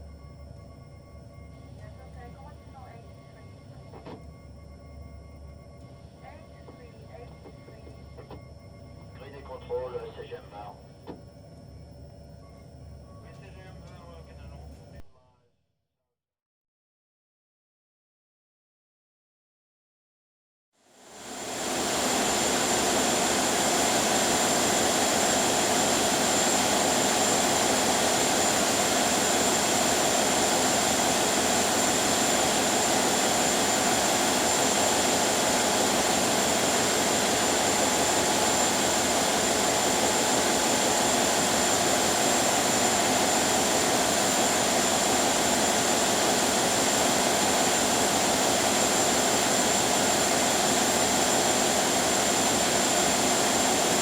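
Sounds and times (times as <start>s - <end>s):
ship engine drone: 0.0s - 15.0s, 21.0s - 54.0s
constant high whine: 0.0s - 15.3s, 20.8s - 54.0s.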